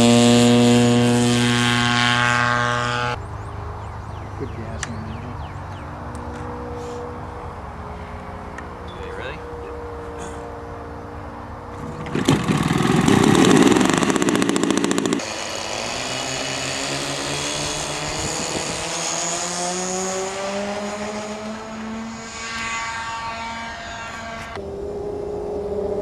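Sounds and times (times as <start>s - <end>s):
model airplane engine running: 0.0s - 3.2s, 6.2s - 26.0s
loud rushing noise: 10.0s - 26.0s.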